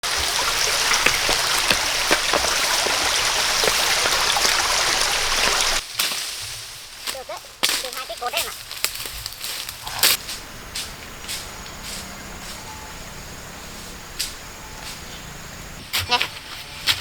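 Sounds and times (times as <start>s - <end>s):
water hissing and splashing: 0.0s - 12.6s.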